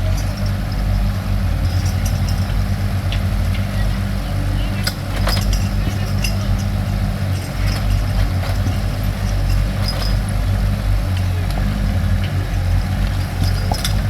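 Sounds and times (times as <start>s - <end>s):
excavator engine humming: 0.0s - 14.0s.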